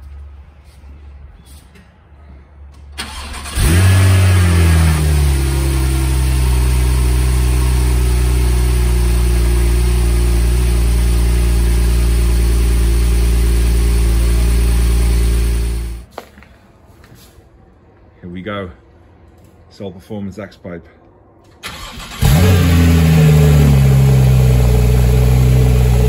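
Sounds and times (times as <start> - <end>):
car engine starting and idling: 3.0 - 16.1, 21.4 - 26.0.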